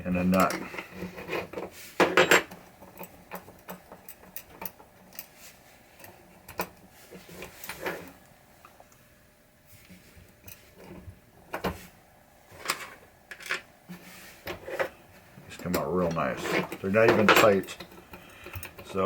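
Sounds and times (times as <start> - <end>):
metal hardware clinking: 2.0 - 5.4, 15.5 - 19.0.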